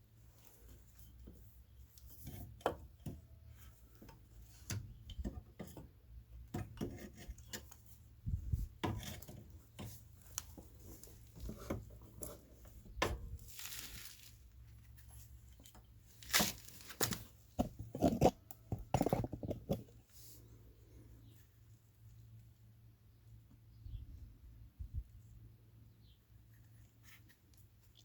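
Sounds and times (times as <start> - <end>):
tools clinking and scraping: 16.4 - 19.9.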